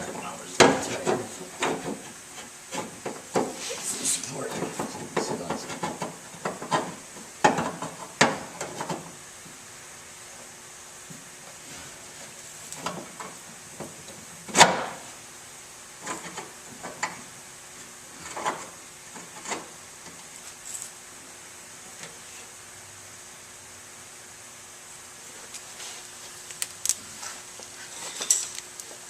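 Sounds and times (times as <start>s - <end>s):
knocks and clanks on car body: 4.7s - 9.1s.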